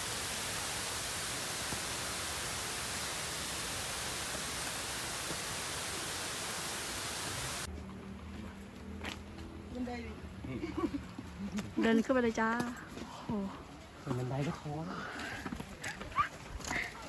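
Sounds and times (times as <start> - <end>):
waterfall rushing: 0.0 - 7.7.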